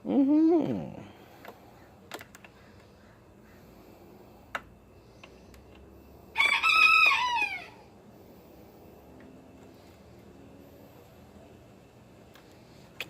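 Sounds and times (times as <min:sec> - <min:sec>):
rooster crowing: 0:06.3 - 0:08.0.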